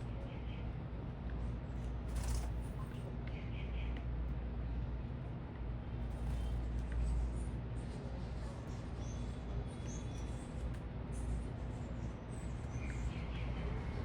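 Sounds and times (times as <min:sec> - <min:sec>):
low city rumble: 0:00.0 - 0:14.0
small birds chirping: 0:02.2 - 0:04.0.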